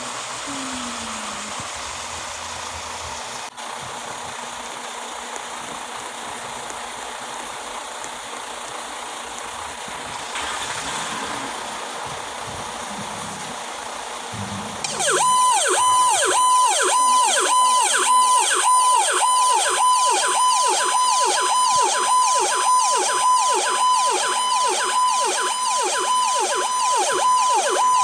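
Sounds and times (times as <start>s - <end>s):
siren yelping: 14.4s - 28.0s.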